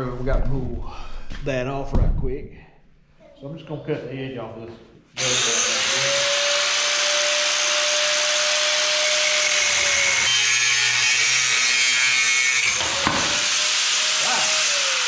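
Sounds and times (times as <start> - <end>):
power cutting tool cutting: 5.2 - 15.0.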